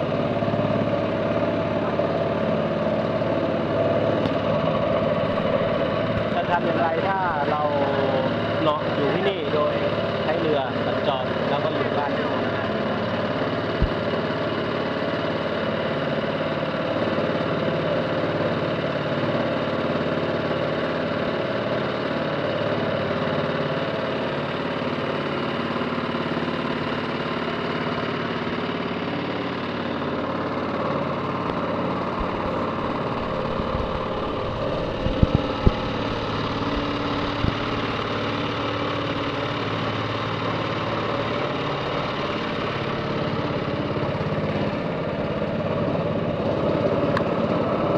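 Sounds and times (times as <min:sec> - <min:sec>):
boat engine running: 0:00.0 - 0:47.9.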